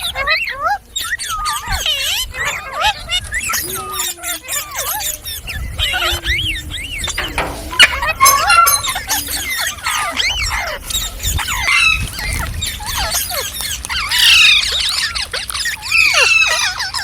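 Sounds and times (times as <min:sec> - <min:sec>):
parrots squealing and chattering: 0:11.4 - 0:17.0
harsh parrot screech: 0:11.6 - 0:17.0.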